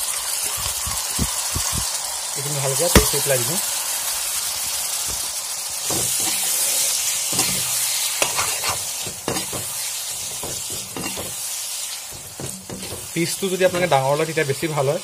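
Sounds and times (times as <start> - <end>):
chicken sizzling in hot oil: 0.0 - 15.0
metal spatula scraping a pan: 5.8 - 14.3.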